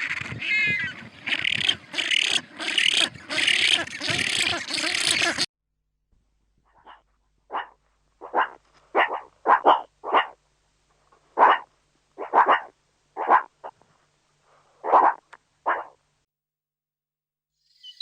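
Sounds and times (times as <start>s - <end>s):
dog barking: 6.8s - 10.4s, 11.4s - 13.5s, 14.8s - 16.0s.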